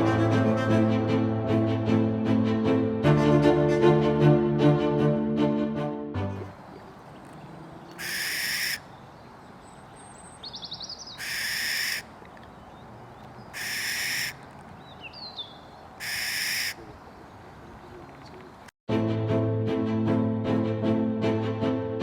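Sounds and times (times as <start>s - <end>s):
small birds chirping: 6.5s - 18.7s
barn owl screeching: 7.8s - 9.1s, 10.4s - 12.4s, 13.5s - 17.3s.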